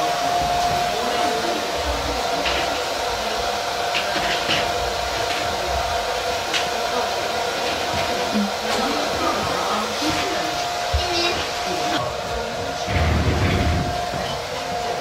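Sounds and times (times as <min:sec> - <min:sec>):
constant hum: 0:07.6 - 0:15.0
steady whooshing noise: 0:12.8 - 0:14.5.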